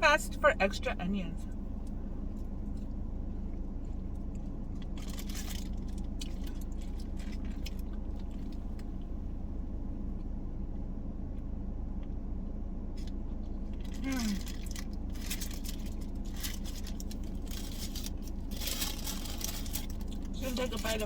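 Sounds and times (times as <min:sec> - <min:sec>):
car cabin engine hum: 0:00.0 - 0:21.0
food wrappers crinkling: 0:04.8 - 0:08.6, 0:13.8 - 0:21.0.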